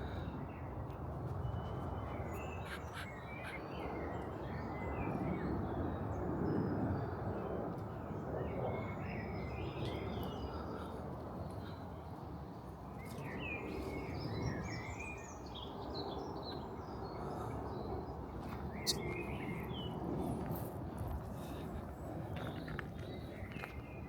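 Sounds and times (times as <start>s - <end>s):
birds chirping: 1.7s - 4.7s, 18.8s - 19.4s.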